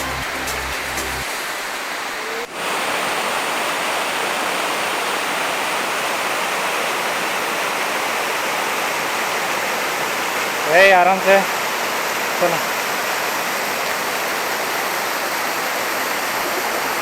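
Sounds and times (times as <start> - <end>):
background music: 0.0 - 1.3
waterfall rushing: 0.0 - 17.0.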